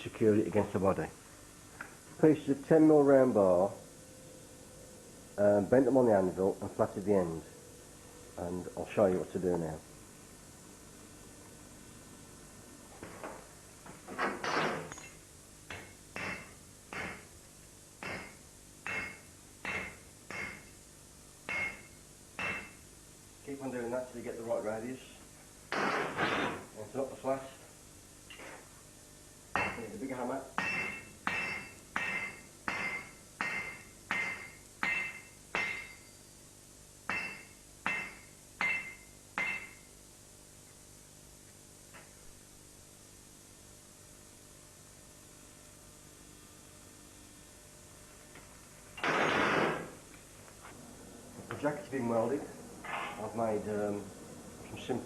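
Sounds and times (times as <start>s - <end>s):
hammer striking steel on anvil: 14.9s - 17.3s, 18.0s - 20.8s, 21.4s - 22.8s, 29.5s - 29.9s, 30.6s - 36.1s, 37.0s - 39.9s.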